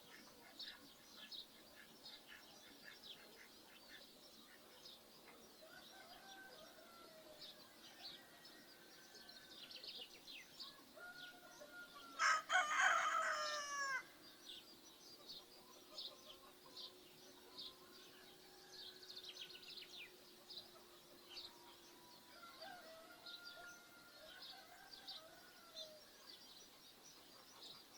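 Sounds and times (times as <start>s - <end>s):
small birds chirping: 0.0s - 27.9s
rooster crowing: 11.0s - 14.1s, 22.4s - 26.1s.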